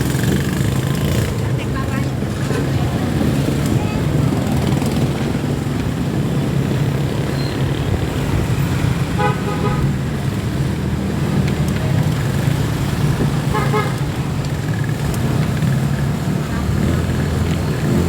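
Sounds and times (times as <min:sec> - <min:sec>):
low traffic rumble: 0:00.0 - 0:18.0
vehicle horn toot: 0:09.2 - 0:09.9.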